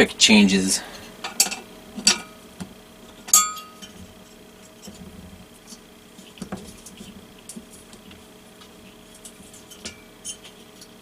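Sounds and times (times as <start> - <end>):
metal tool clinking on metal: 3.3 - 3.9.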